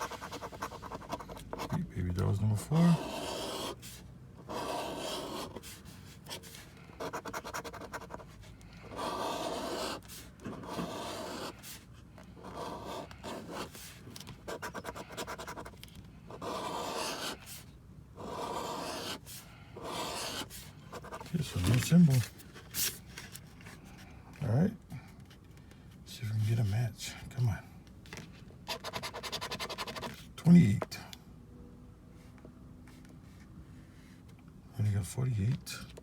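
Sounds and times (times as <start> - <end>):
lottery ticket being scratched: 0.0 - 3.8, 4.4 - 8.3, 8.9 - 11.7, 16.4 - 17.4, 18.2 - 19.2, 19.9 - 22.4, 28.7 - 30.2.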